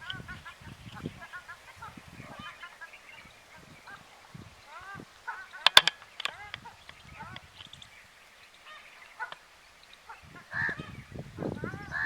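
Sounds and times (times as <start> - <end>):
birds calling: 0.0 - 12.0
sharp loud clicks: 5.5 - 7.9.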